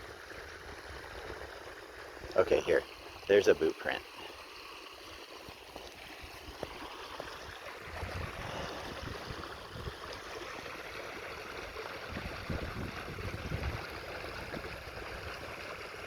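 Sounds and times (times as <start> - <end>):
creek water running: 0.0 - 16.0
wind gusting on microphone: 7.9 - 10.0, 12.0 - 14.8.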